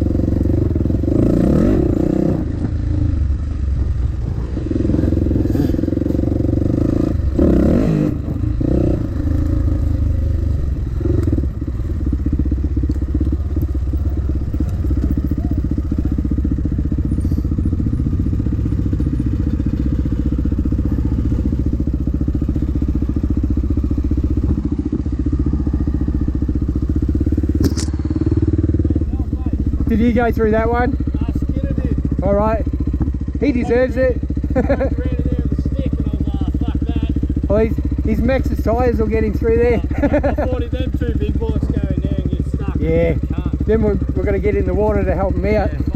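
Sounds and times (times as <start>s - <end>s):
dirt bike engine running: 0.0s - 45.9s
sharp click: 27.6s - 28.0s.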